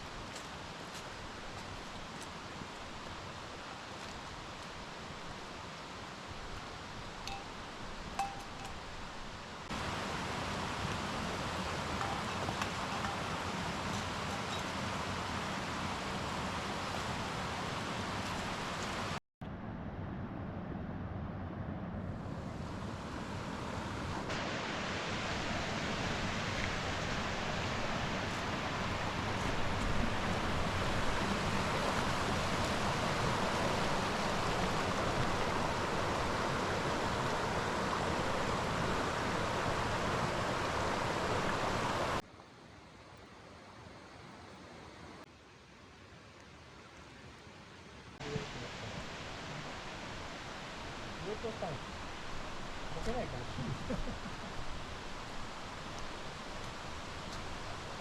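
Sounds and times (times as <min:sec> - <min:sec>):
steady outdoor rushing noise: 0:07.9 - 0:42.7, 0:48.1 - 0:58.0.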